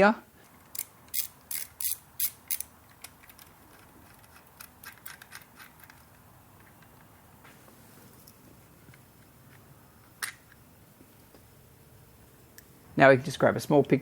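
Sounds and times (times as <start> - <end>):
hand ratchet clicking: 0.6 - 6.2.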